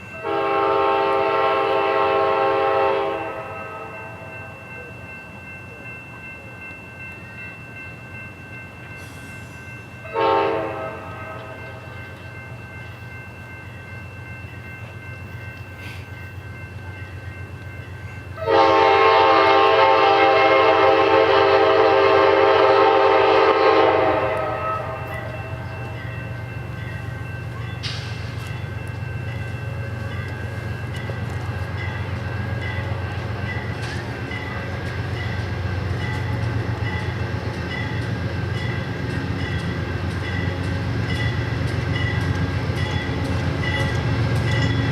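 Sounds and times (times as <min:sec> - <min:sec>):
train rumble: 0:00.0 - 0:44.9
train air horn blasts: 0:00.2 - 0:04.2, 0:10.1 - 0:11.6, 0:18.4 - 0:25.6.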